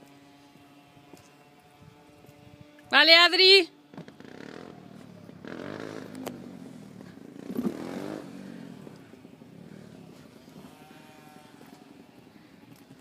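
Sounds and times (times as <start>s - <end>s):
electric motorbike whining by: 0.0s - 13.0s.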